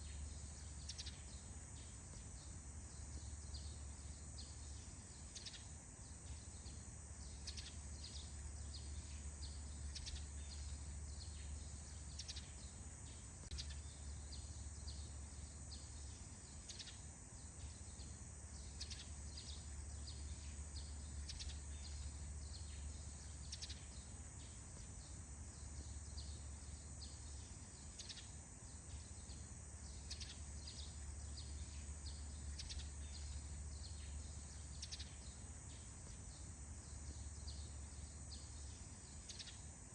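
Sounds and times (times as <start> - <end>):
birds chirping: 0.0 - 39.6.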